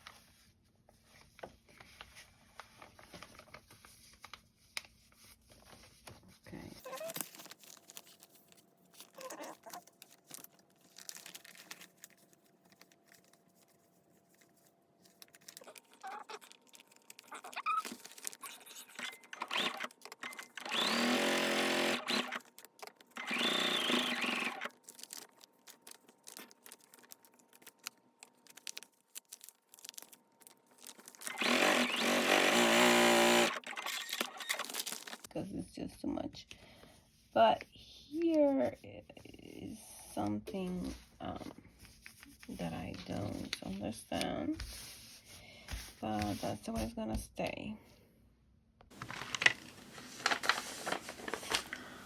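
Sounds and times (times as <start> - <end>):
paper rustling: 0.0 - 20.6, 24.5 - 31.6, 33.7 - 35.3, 40.6 - 47.0, 48.9 - 52.0
sewing machine running: 19.0 - 22.5, 23.2 - 24.7, 31.2 - 34.7.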